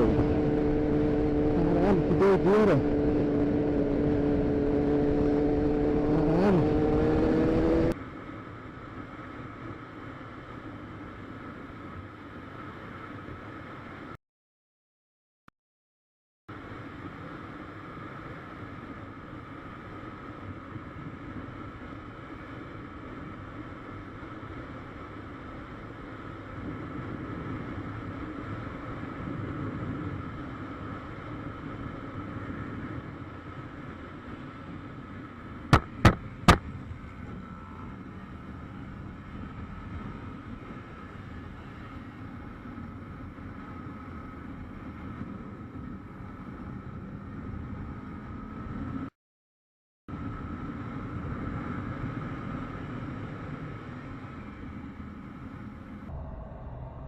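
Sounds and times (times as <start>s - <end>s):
motorcycle engine running: 0.0s - 8.0s
road noise: 0.0s - 14.2s, 16.5s - 49.1s, 50.1s - 57.0s.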